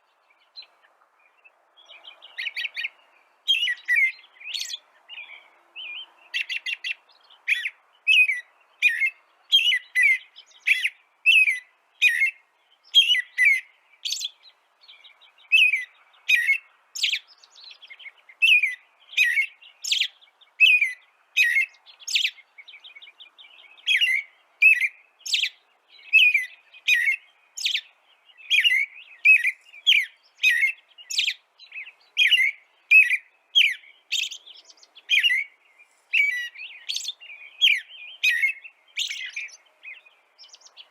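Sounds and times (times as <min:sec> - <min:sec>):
small songbird chirping: 0:00.0 - 0:40.9.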